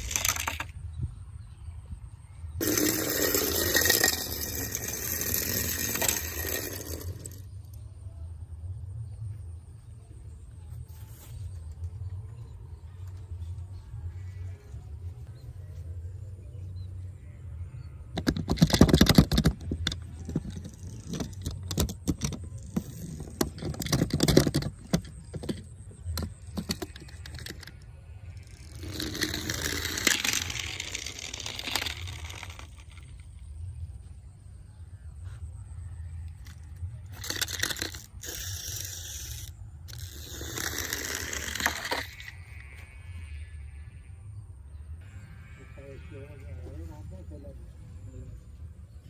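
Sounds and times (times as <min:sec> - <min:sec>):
toy cars clattering: 0:00.0 - 0:00.9, 0:02.6 - 0:07.8, 0:18.1 - 0:33.5, 0:36.3 - 0:42.6.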